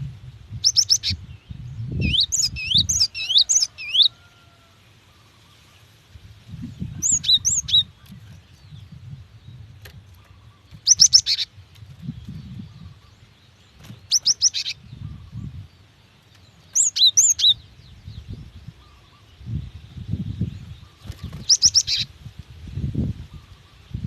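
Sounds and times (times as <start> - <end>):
bird chirps: 0.6 - 4.2, 6.8 - 15.7, 16.3 - 22.1.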